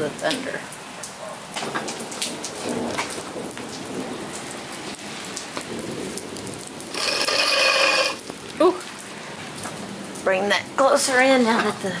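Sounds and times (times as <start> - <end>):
rain on concrete: 0.0 - 12.0
grill legs scraping concrete: 6.6 - 8.4.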